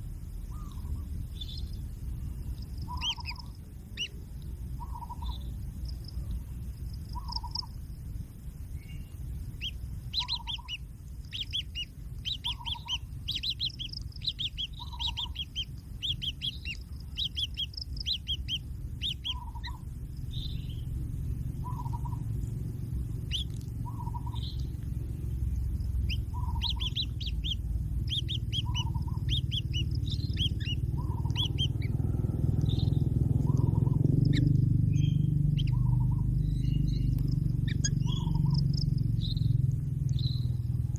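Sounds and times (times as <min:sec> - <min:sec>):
soft low bird call: 0:00.0 - 0:07.9, 0:08.7 - 0:40.9
birds chirping: 0:00.0 - 0:40.9
low rumble: 0:00.0 - 0:40.9.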